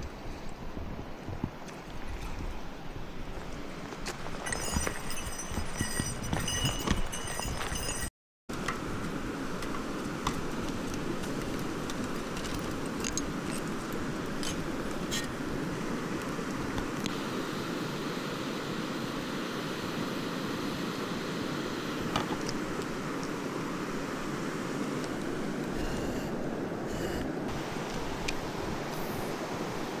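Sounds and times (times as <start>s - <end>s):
stream flowing over rocks: 21.7s - 30.0s.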